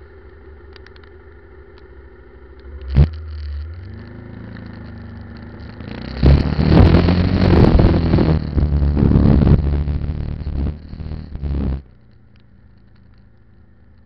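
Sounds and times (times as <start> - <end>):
motorcycle engine running: 0.0 - 14.0
loud rushing noise: 5.9 - 11.8.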